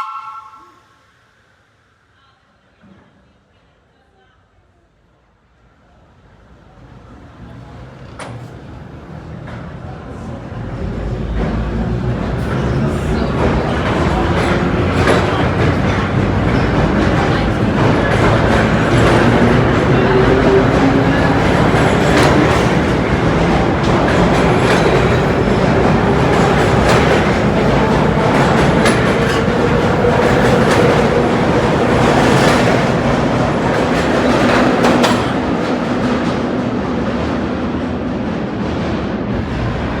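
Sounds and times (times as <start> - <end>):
subway train rumbling on rails: 0.0 - 40.0
wheels clicking over rail joints: 13.2 - 36.2.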